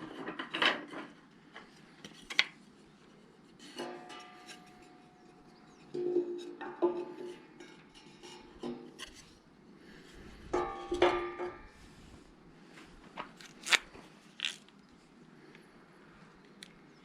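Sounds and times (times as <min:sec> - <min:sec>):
metal cooking pot clanking: 0:05.8 - 0:08.9, 0:10.6 - 0:11.7.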